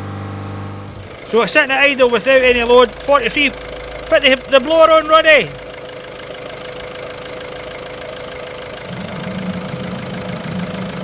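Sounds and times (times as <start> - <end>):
diesel engine idling with whine: 0.0 - 11.0
blower fan hum: 8.7 - 11.0.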